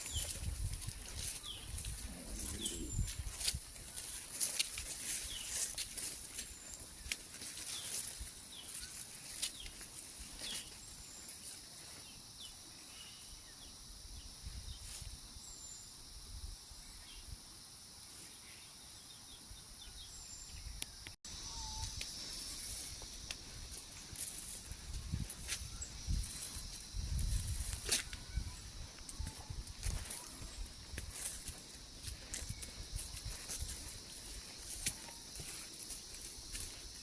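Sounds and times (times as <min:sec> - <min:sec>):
high-pitched insect drone: 0:21.3 - 0:37.0.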